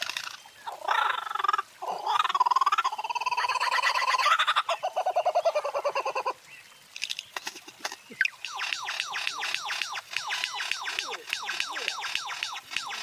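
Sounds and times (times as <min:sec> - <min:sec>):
bird gobble-like call: 0:08.2 - 0:13.0
bird quick falling notes: 0:08.2 - 0:13.0
clicks: 0:08.2 - 0:13.0.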